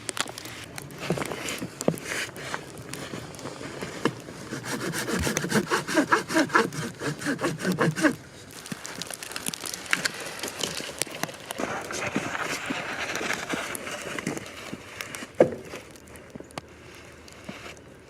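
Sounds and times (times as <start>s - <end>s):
hand saw cutting wood: 4.4s - 8.2s
wood clicks: 7.7s - 16.7s.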